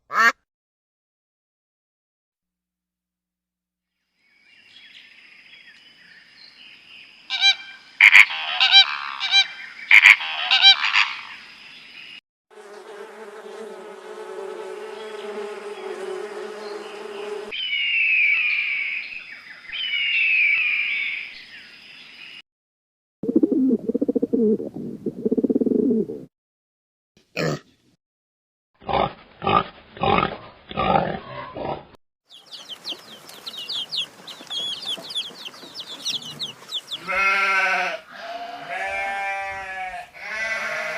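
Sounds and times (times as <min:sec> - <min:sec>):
sharp animal calls: 0:07.3 - 0:11.4, 0:33.4 - 0:40.9
falling whistled calls: 0:17.6 - 0:21.5.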